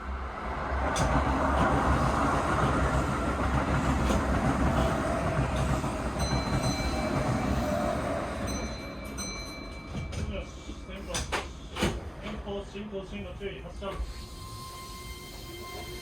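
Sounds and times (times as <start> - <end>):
train air brakes hissing: 3.8 - 6.2, 13.9 - 16.0.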